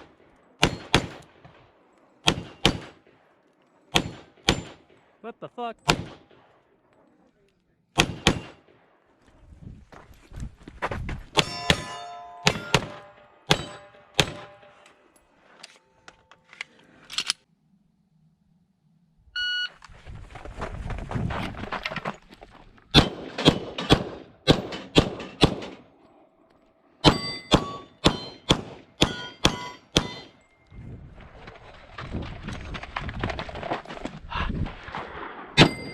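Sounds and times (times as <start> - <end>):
pistol shots: 0.0 - 5.2, 5.8 - 6.6, 7.9 - 9.0, 11.4 - 14.7, 22.9 - 25.9, 27.0 - 30.4
steel targets ringing: 11.4 - 14.8, 27.0 - 30.7, 35.6 - 35.9
shot timer beep: 19.4 - 19.7.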